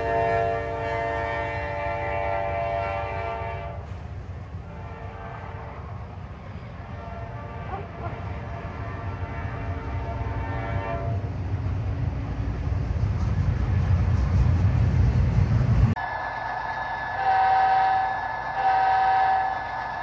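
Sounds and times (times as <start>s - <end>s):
locomotive air horn chord: 0.0s - 3.9s, 4.6s - 6.0s, 6.9s - 11.3s, 17.1s - 20.0s
model train horn: 0.0s - 3.9s, 4.6s - 6.0s, 6.8s - 11.3s, 17.1s - 20.0s
diesel locomotives rumbling past: 0.0s - 20.0s.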